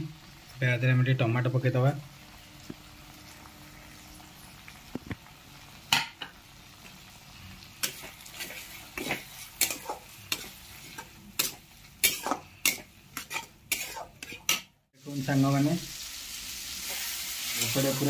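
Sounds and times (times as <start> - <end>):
tomatoes sizzling in oil: 0.0 - 18.0
spatula scraping pan: 7.8 - 14.7.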